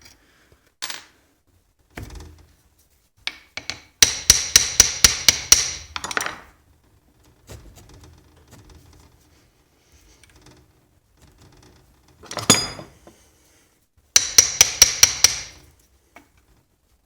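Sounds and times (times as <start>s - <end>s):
hammer striking metal: 3.6s - 6.1s, 14.2s - 15.6s.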